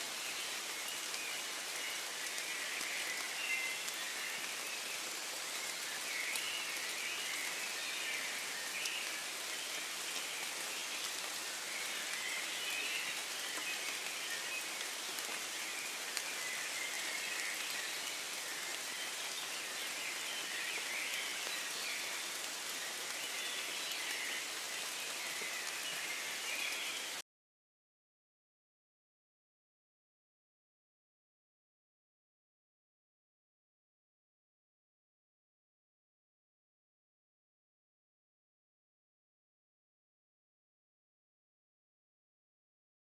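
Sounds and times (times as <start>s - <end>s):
steady rain: 0.0s - 27.2s.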